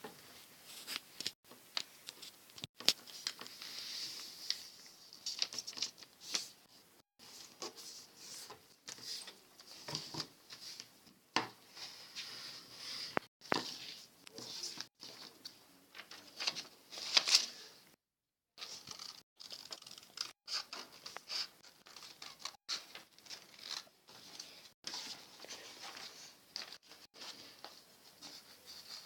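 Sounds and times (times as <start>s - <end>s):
paper rustling and crinkling: 2.0s - 6.6s, 13.0s - 17.7s, 18.6s - 29.0s.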